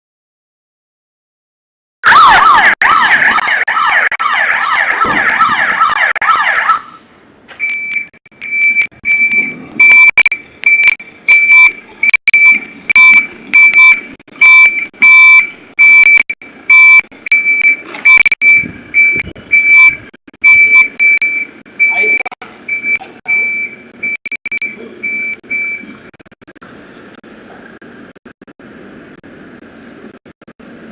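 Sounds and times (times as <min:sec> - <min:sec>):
warbling siren yelp: 0:02.0 - 0:07.0
high beep: 0:07.6 - 0:25.9.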